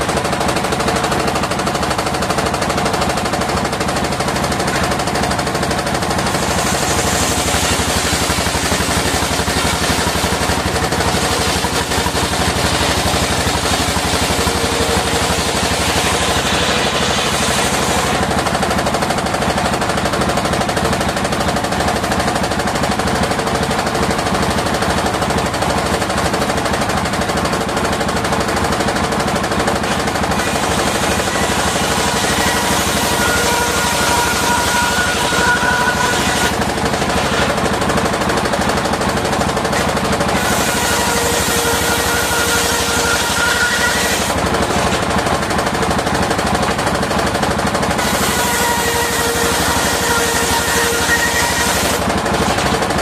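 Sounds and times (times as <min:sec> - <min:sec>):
sawmill mechanical chatter: 0:00.0 - 0:53.0
saw blade hissing in wood: 0:06.3 - 0:18.2.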